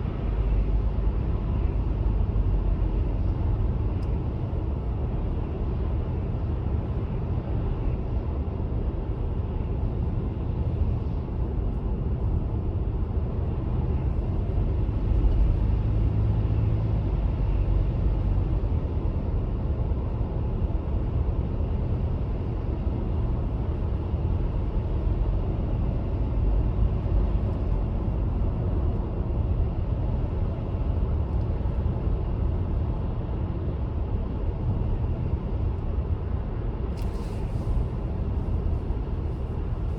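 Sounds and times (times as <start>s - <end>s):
car driving road rumble: 0.0s - 39.9s.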